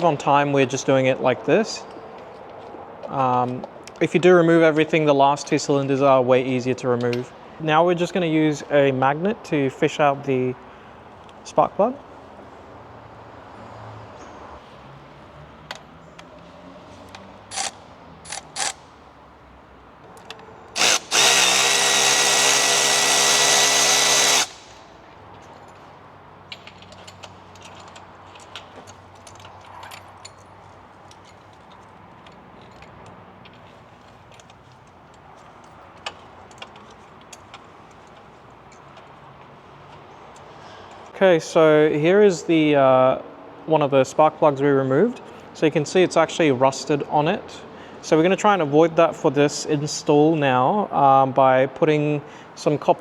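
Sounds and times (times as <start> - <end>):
power tool motor whine: 20.7 - 24.9.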